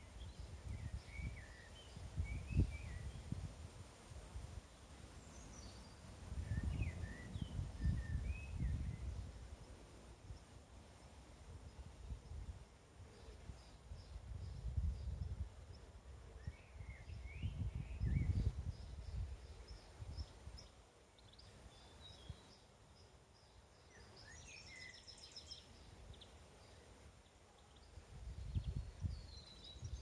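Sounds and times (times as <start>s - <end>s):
wind rumble on microphone: 0.0s - 10.6s, 11.2s - 20.7s, 27.9s - 30.0s
small birds chirping: 11.6s - 30.0s.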